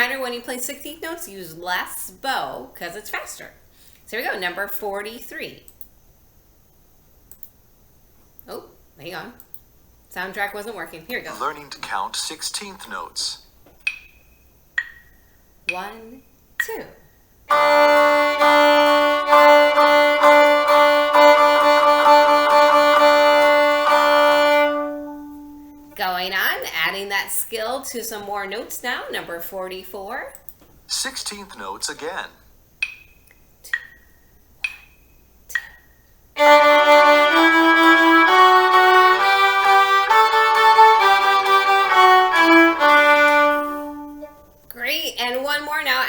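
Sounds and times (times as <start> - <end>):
accompaniment track with held tones: 17.5 - 26.0, 36.4 - 44.6
viola bowing short notes: 17.5 - 26.0, 36.4 - 44.6.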